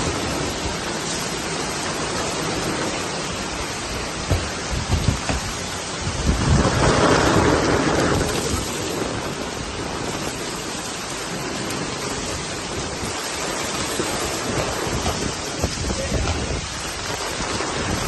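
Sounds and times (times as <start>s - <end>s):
rain falling steadily: 0.0s - 18.0s.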